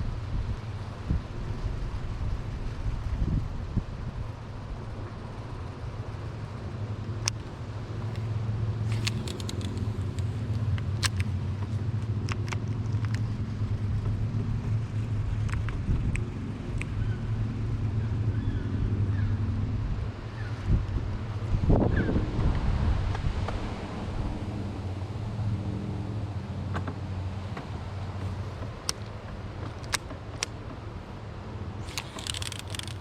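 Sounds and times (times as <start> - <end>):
wind buffeting microphone: 0.0 - 25.8
boat motor humming: 3.8 - 21.5, 23.6 - 33.0
sharp clicks and knocks: 8.9 - 13.3, 27.6 - 30.8, 31.8 - 33.0.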